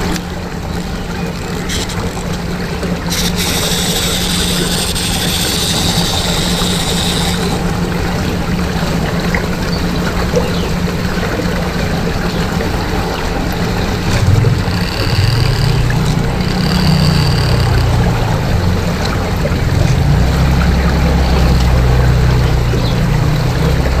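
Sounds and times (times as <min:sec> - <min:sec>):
water swirling and pouring: 0:00.0 - 0:22.8
low motor hum: 0:00.0 - 0:24.0.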